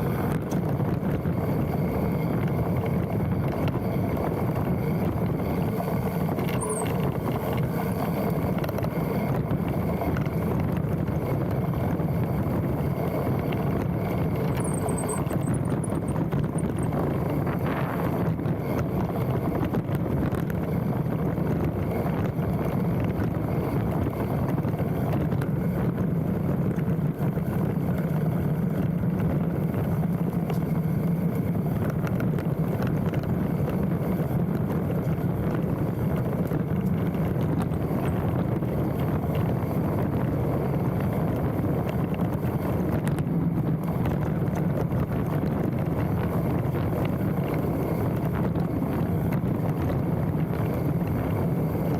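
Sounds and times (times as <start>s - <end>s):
bicycle tyre rumble: 0.0s - 51.9s
wind rush on microphone: 0.0s - 51.9s
bike rattling and knocking: 0.2s - 51.9s.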